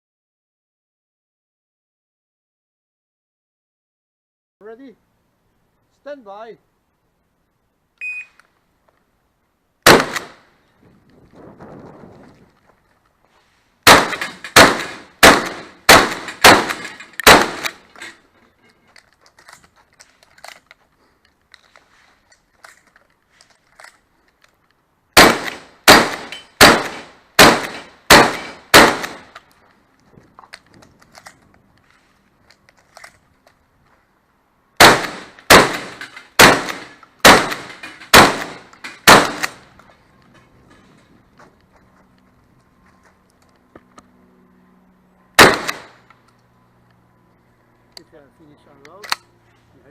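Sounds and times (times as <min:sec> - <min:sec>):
shotgun shots: 0:09.8 - 0:10.5, 0:13.8 - 0:17.9, 0:25.2 - 0:29.4, 0:34.8 - 0:39.7, 0:45.4 - 0:46.0.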